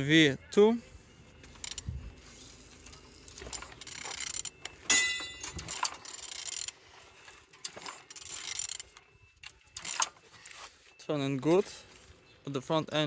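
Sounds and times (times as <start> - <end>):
ratchet clicks: 1.5 - 1.9, 2.6 - 6.8, 7.6 - 10.2
ringing metallic clang: 4.8 - 6.0
metal knocks: 4.9 - 5.9.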